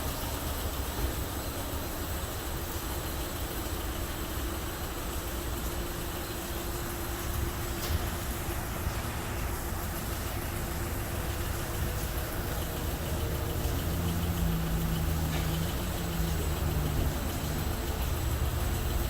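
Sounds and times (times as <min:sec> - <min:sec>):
car wash spray hissing: 0:00.0 - 0:19.0
low machine hum: 0:00.0 - 0:19.0
low motor tone: 0:06.7 - 0:19.0.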